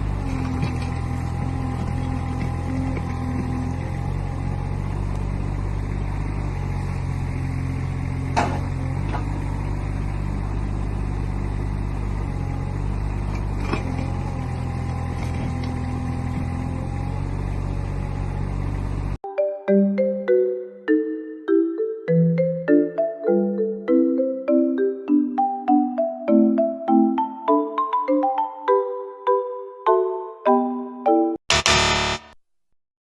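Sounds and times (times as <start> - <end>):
diesel engine running: 0.0 - 19.2, 31.5 - 32.2
marimba-like tune: 19.2 - 31.4.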